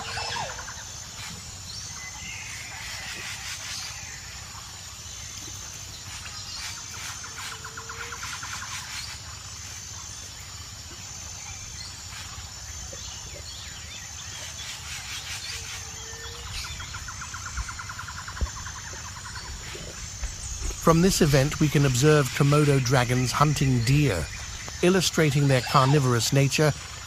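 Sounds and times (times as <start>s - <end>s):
bird calls: 0.0s - 4.4s, 10.9s - 27.0s
low background noise: 0.0s - 27.0s
rapid pulsed bird trill: 0.0s - 27.0s.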